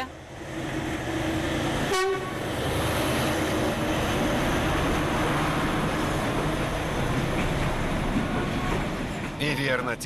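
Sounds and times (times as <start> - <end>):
locomotive horn blast: 1.9 - 2.4.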